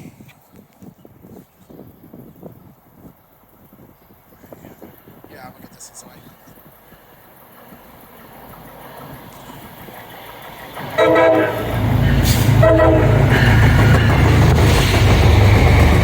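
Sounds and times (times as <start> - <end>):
train wheels rumbling on rails: 2.0 - 16.0
train horn blasts: 10.8 - 14.1.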